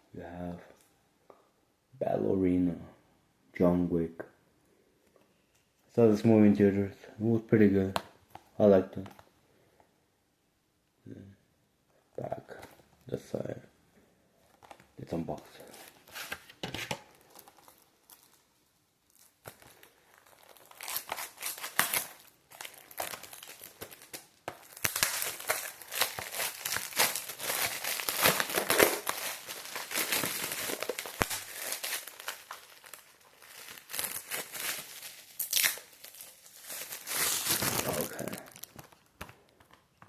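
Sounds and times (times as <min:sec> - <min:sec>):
plastic shrink-wrap crinkling and tearing: 0:14.5 - 0:39.2.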